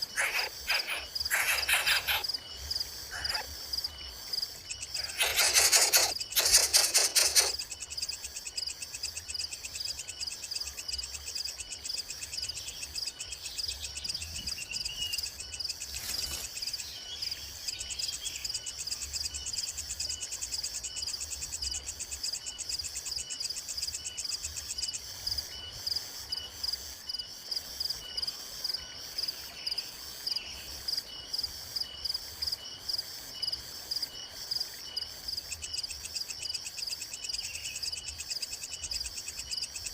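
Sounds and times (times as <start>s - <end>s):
insects chirring in a high trill: 0.0s - 39.9s
insect ticking: 4.6s - 13.6s.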